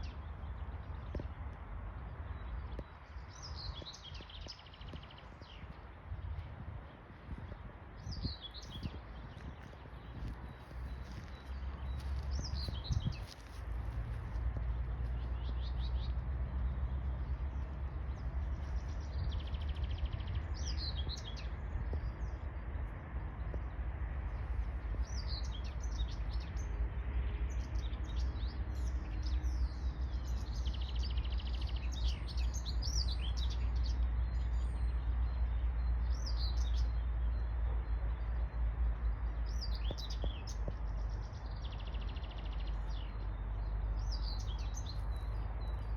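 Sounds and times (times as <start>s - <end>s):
steady low rumble: 0.0s - 45.9s
songbirds chirping and singing: 24.6s - 45.9s.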